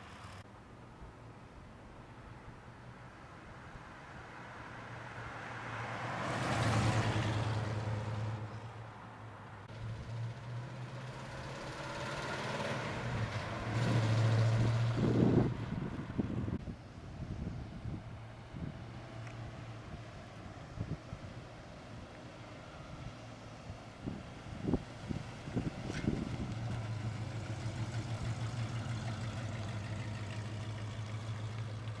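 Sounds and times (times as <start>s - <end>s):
car engine idling: 25.0s - 32.0s.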